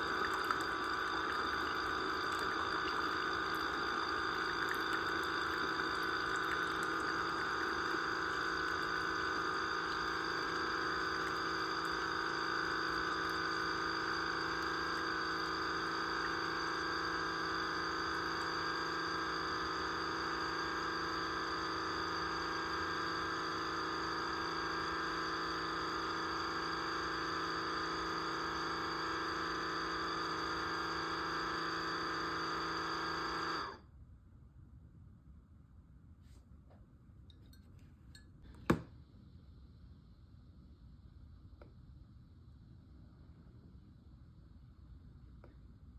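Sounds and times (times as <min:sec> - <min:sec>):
coffee maker pump running: 0:00.0 - 0:33.8.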